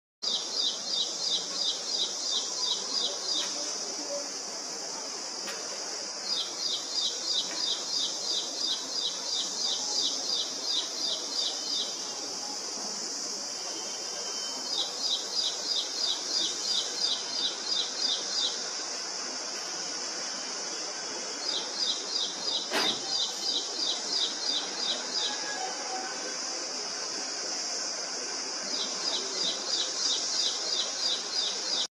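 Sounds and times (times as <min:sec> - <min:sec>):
high-pitched hiss: 0:00.2 - 0:31.9
single knock: 0:22.7 - 0:23.1.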